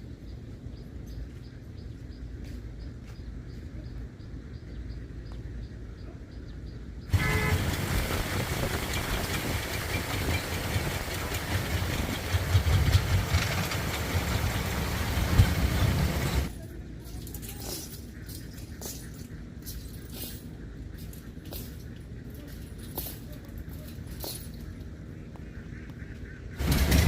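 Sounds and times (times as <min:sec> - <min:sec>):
truck engine rumbling: 0:07.1 - 0:17.4, 0:26.6 - 0:27.0.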